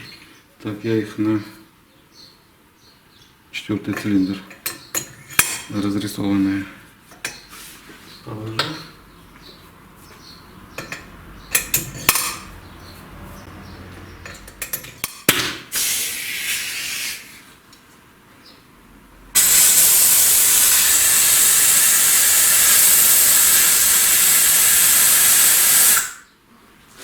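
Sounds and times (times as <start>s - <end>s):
compressed air hissing: 15.7s - 17.4s, 19.4s - 26.3s.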